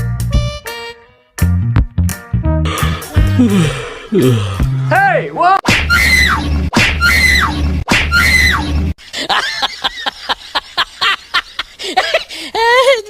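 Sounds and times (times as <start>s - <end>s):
short sharp yelps: 5.8s - 8.7s
high-pitched screaming cries: 5.9s - 6.4s, 7.0s - 8.7s.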